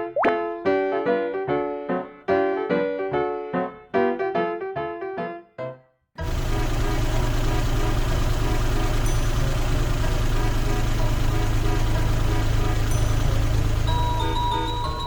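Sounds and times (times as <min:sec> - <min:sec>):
small electric motor humming: 0:06.2 - 0:15.0.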